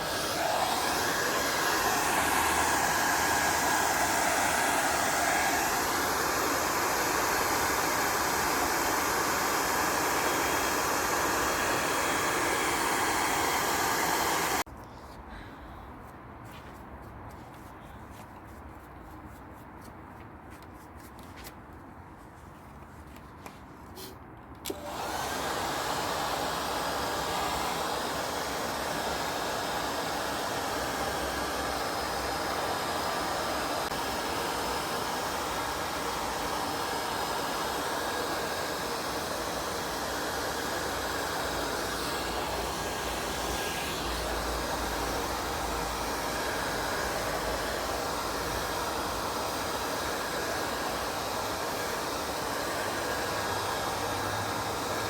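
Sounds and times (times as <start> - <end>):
power tool motor whirring: 0.0 - 14.6, 35.3 - 55.0.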